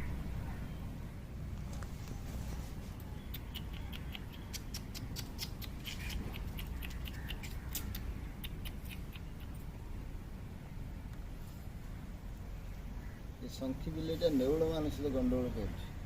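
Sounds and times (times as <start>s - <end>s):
steady low rumble: 0.0s - 14.4s
small animal chattering calls: 3.3s - 9.8s.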